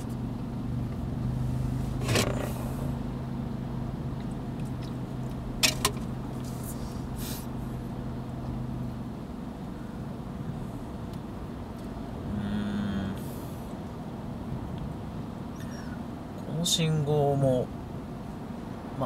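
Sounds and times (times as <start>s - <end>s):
car engine idling: 0.0s - 19.0s
clicks inside car: 5.6s - 6.1s.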